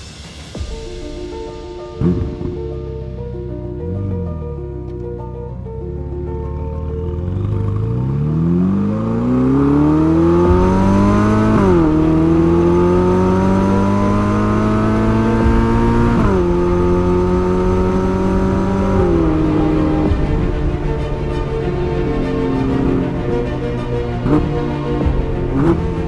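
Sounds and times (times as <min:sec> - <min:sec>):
car engine accelerating: 0:02.0 - 0:02.6, 0:06.8 - 0:26.0.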